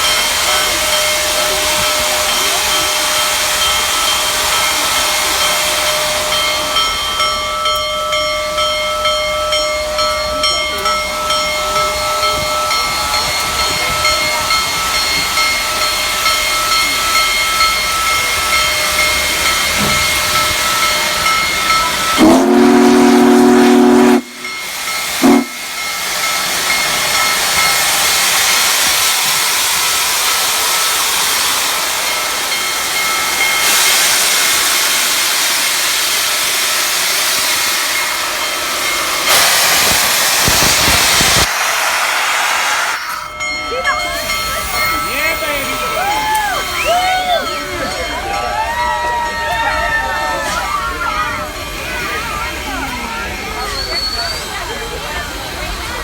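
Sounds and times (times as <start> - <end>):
steam hiss: 0.0 - 56.0
steam locomotive chuffing: 0.0 - 56.0
steam whistle blast: 22.1 - 24.6, 25.2 - 25.8.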